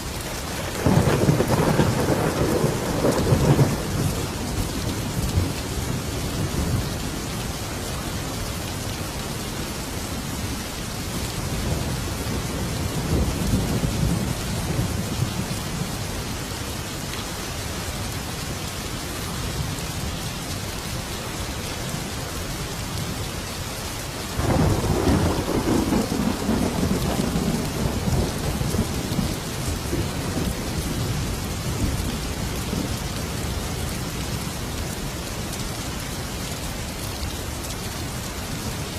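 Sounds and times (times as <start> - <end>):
heavy rain: 0.0 - 38.9
rolling thunder: 0.5 - 6.8, 24.4 - 32.0
loud thunderclap: 0.6 - 4.2, 24.4 - 29.3.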